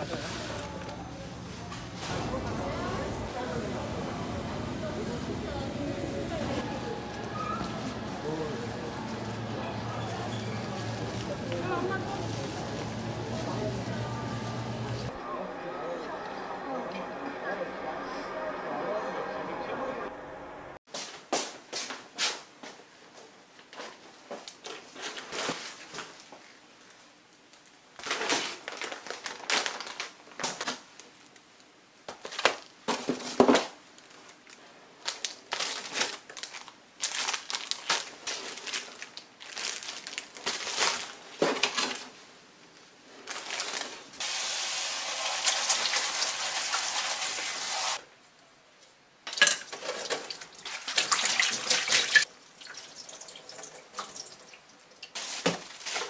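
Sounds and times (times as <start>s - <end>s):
groceries rustling and knocking: 6.0s - 15.2s, 23.6s - 26.4s, 28.0s - 30.9s, 32.0s - 42.2s, 43.1s - 44.2s, 55.1s - 56.0s.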